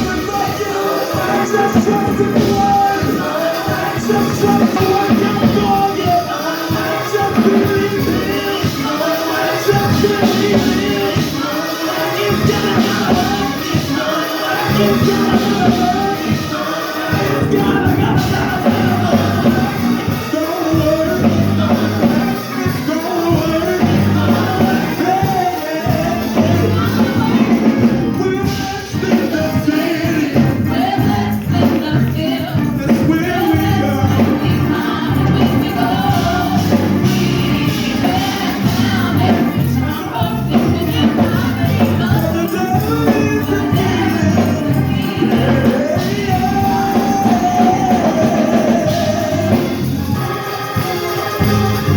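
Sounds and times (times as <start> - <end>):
gospel singing: 0.0 - 51.9
tambourine beat: 0.0 - 51.9.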